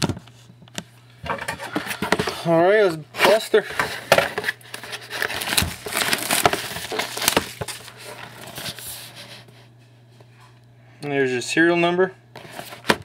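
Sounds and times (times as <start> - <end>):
plastic wrapping torn and crinkled: 3.3 - 9.1.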